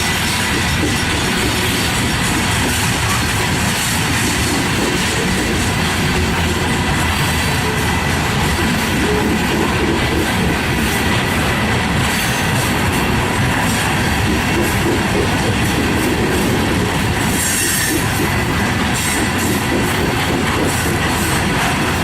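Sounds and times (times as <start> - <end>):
freight train rolling past: 0.0 - 22.0
high wheel squeal: 17.3 - 18.1.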